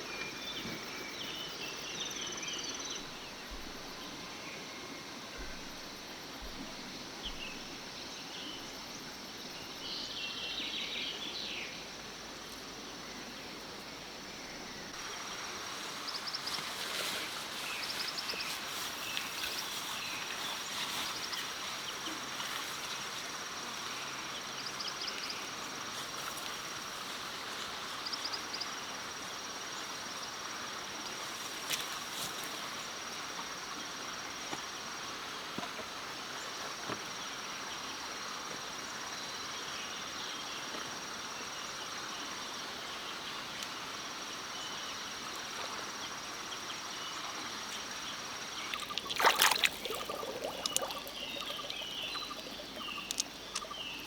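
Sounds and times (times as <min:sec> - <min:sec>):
stream water running: 0:00.0 - 0:38.1, 0:39.6 - 0:54.0
insect high-pitched trill: 0:48.6 - 0:54.0
small clicks and knocks: 0:53.0 - 0:53.8.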